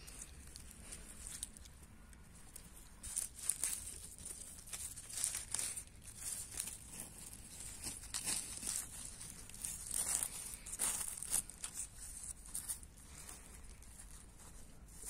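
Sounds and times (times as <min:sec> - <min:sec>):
leaves rustling and tearing: 0:00.0 - 0:15.0.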